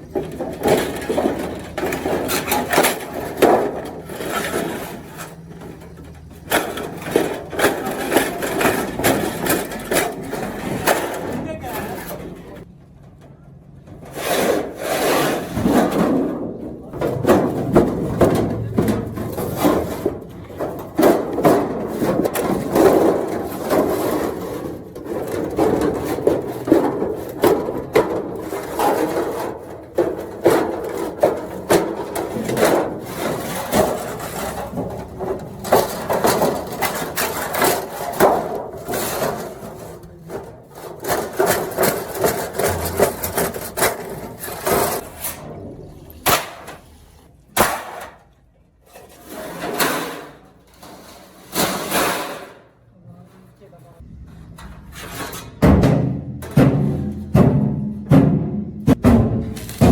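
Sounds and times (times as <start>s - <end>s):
hand tools knocking and scraping: 0.0s - 59.9s.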